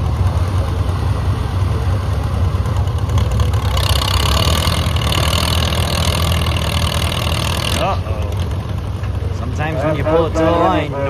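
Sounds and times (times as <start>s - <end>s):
tractor engine under load: 0.0s - 11.0s.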